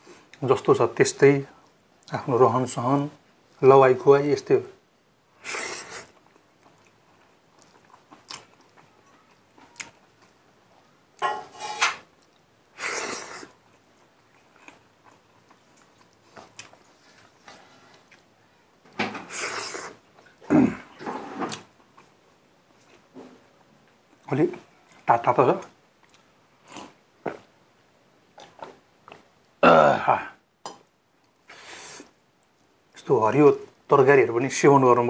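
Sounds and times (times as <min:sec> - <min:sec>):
man chewing and mouth smacking: 0:05.4 - 0:10.4, 0:12.2 - 0:20.4, 0:21.7 - 0:23.1, 0:24.9 - 0:27.5, 0:28.3 - 0:29.6.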